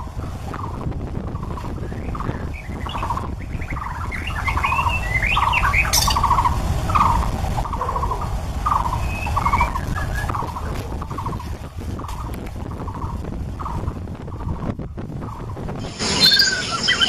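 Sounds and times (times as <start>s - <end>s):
low rumble: 0.0s - 17.0s
songbird singing: 0.0s - 17.0s.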